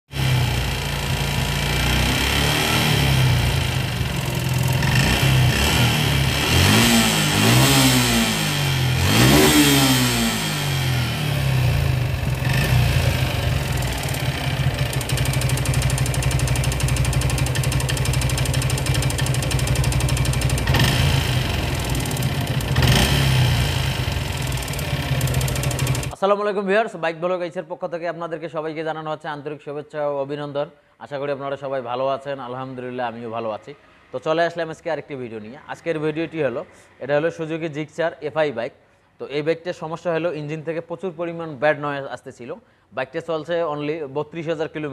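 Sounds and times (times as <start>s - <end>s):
motorcycle engine idling and revving: 0.1s - 26.2s.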